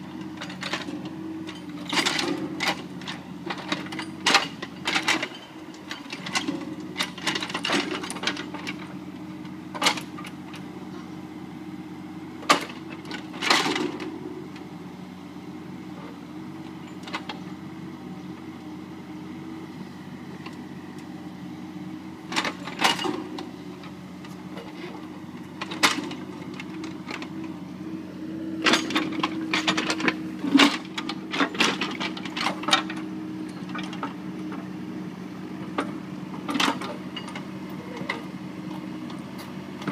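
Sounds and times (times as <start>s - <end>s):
excavator diesel engine running: 0.0s - 39.9s
metallic clanks of excavator bucket: 0.2s - 8.9s, 9.7s - 11.1s, 12.4s - 14.2s, 22.2s - 27.5s, 28.6s - 34.6s, 35.7s - 38.8s.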